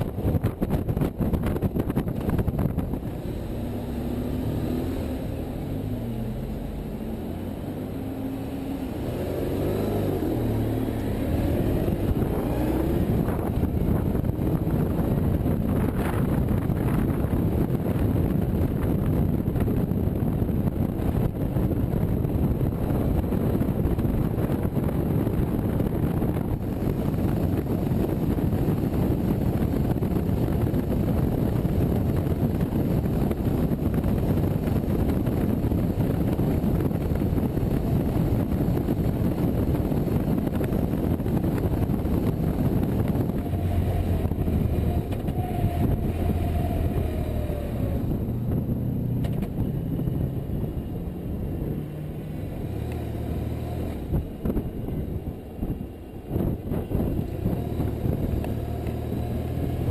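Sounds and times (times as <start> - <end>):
wind and road noise: 0.0 - 59.9
motorcycle engine running: 9.9 - 51.7.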